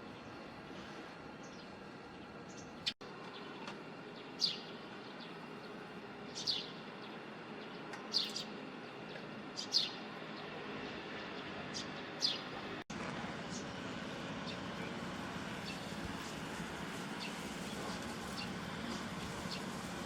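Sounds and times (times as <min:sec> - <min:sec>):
sparrows chirping: 0:02.4 - 0:12.7, 0:13.4 - 0:13.8, 0:14.4 - 0:19.9.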